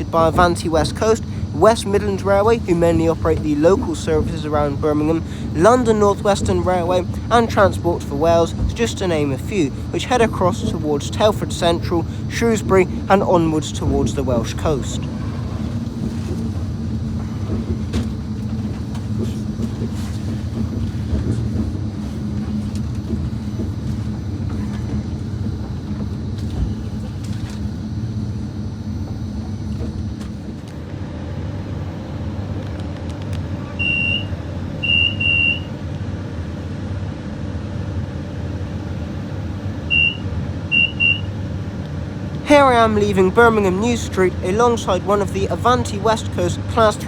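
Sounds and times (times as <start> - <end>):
diesel train rumbling: 0.0 - 47.0
short high beeps: 33.8 - 35.7, 39.9 - 41.3.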